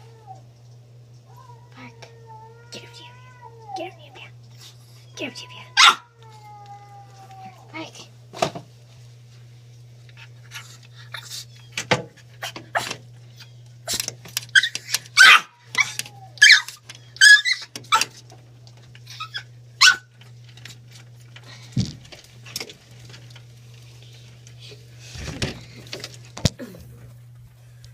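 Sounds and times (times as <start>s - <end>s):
dog barking: 5.8s - 6.1s, 15.2s - 15.6s, 19.8s - 20.0s.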